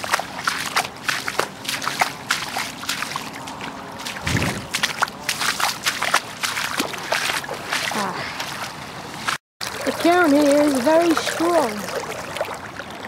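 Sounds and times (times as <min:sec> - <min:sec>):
water sloshing and splashing: 0:00.0 - 0:13.0
deep thump: 0:04.2 - 0:04.8.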